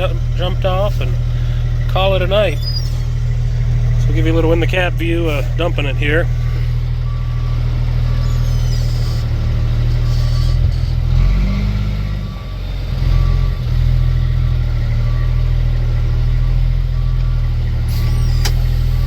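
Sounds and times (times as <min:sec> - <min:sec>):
diesel truck engine running: 0:00.0 - 0:19.0
backup alarm beeping: 0:00.4 - 0:09.4, 0:10.0 - 0:13.7.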